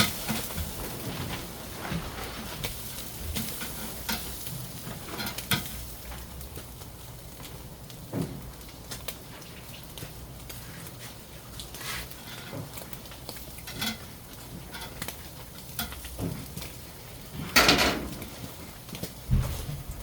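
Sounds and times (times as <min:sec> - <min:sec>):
tableware clatter: 0:17.5 - 0:18.2.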